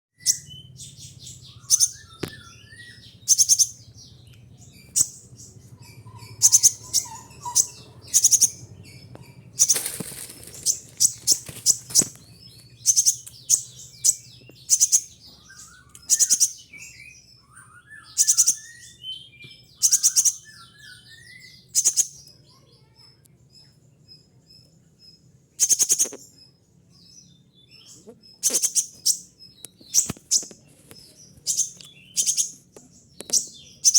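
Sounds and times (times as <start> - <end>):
faint low hum: 0.2 - 33.9
high-pitched bird calls: 0.2 - 33.9
soft bird twittering: 0.2 - 33.9
brief rustle: 9.7 - 12.2.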